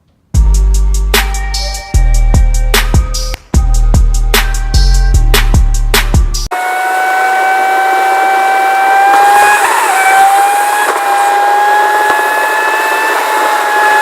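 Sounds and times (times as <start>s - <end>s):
high motor whine: 6.5s - 14.0s.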